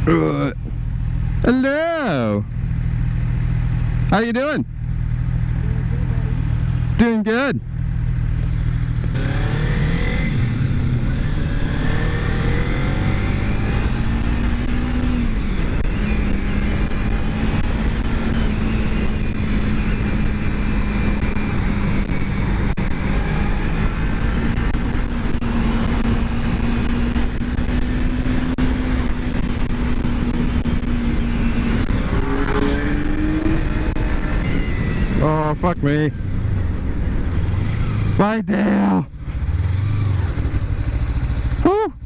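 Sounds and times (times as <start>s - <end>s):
motorcycle engine revving: 0.0s - 42.0s
wind rush on helmet mic: 10.0s - 38.2s.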